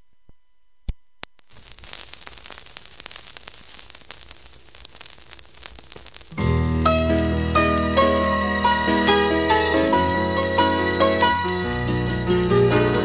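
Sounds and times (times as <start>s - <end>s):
crackling static with clicks: 0.0s - 13.0s
sharp pops: 1.2s - 10.7s.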